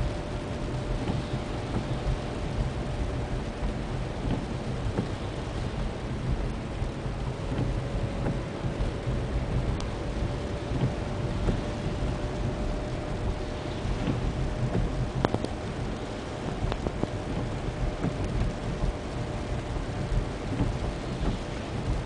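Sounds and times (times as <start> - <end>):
road and drivetrain rumble: 0.0 - 22.0
thin transmission whine: 0.0 - 22.0.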